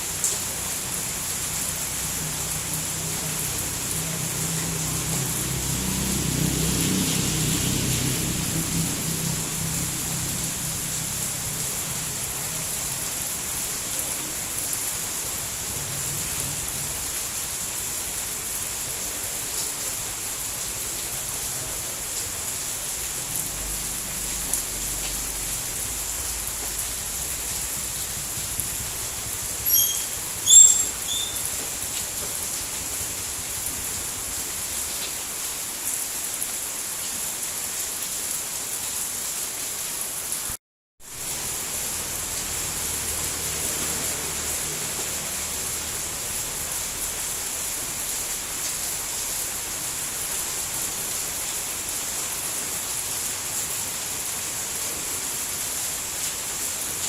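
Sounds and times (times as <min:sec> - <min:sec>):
steady rain hiss: 0:00.0 - 0:57.0
high-pitched chirps: 0:29.7 - 0:31.5.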